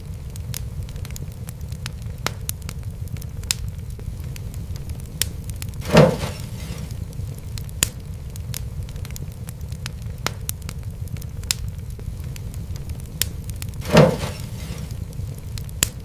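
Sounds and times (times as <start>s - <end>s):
fire crackling in fireplace: 0.0s - 16.0s.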